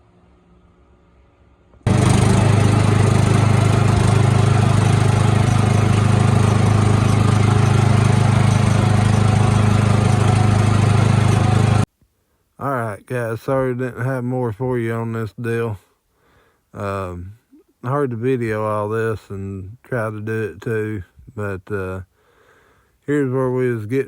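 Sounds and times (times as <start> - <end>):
small engine running: 1.9 - 11.9.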